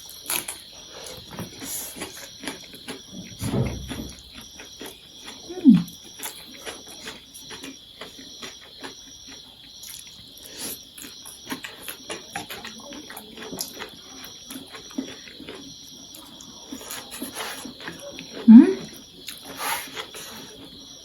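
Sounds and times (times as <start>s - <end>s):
person chewing and slurping noodles: 0.0s - 3.4s, 4.2s - 21.0s.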